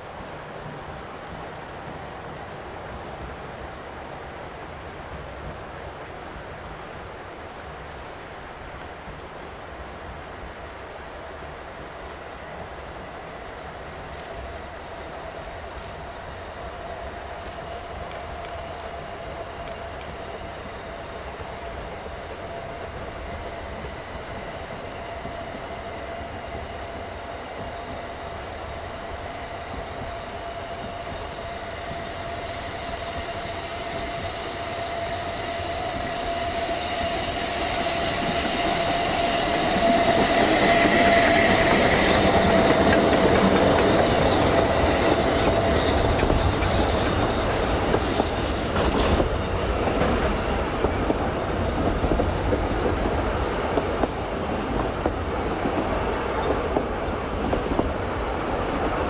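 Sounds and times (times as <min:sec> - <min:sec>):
steam train passing: 0:00.0 - 0:59.0.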